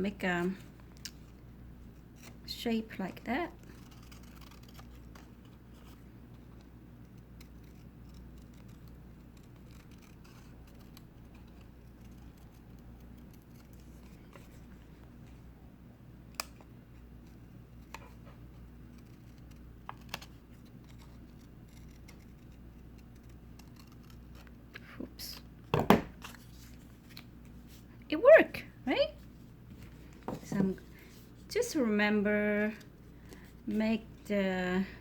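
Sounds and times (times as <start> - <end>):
low steady hum: 0.0 - 35.0
scissors snipping paper: 3.6 - 5.6, 6.6 - 14.5, 18.9 - 24.6.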